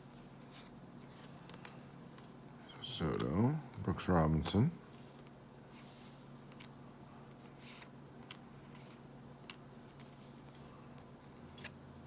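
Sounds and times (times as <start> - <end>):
low steady hum: 0.0 - 12.0
trading cards sliding and clicking: 5.2 - 11.8.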